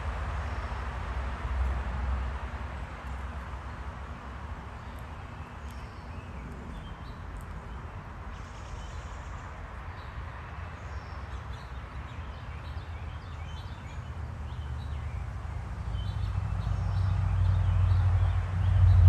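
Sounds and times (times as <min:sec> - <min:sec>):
small birds chirping: 0:04.7 - 0:18.9.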